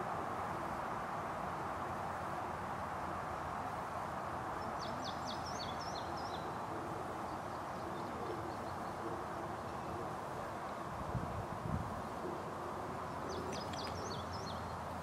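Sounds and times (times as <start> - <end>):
outdoor background hiss: 0.0 - 15.0
small bird chirping: 13.3 - 14.8.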